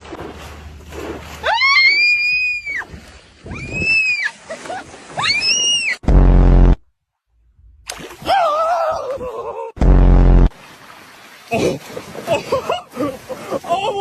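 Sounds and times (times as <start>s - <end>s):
loud low buzzing tone: 6.0s - 7.9s, 9.8s - 10.5s.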